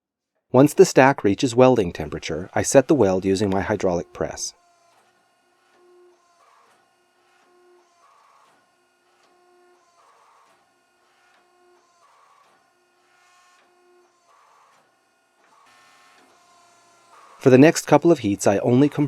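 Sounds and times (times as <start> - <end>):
hydraulic press whirring: 1.1 - 19.0.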